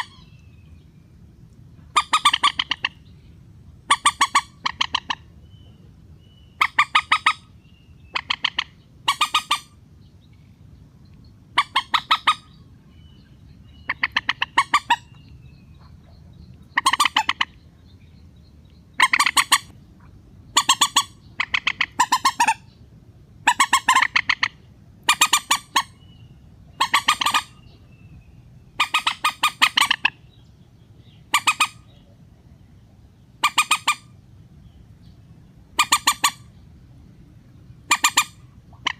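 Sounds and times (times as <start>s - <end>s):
rail bird harsh stuttering squawks: 1.9s - 3.0s, 3.9s - 5.3s, 6.6s - 7.5s, 8.1s - 9.8s, 11.5s - 12.6s, 13.8s - 15.1s, 16.7s - 17.5s, 19.0s - 19.7s, 20.5s - 22.8s, 23.4s - 26.0s, 26.8s - 27.6s, 28.7s - 30.2s, 31.3s - 31.9s, 33.4s - 34.1s, 35.8s - 36.5s, 37.8s - 38.9s.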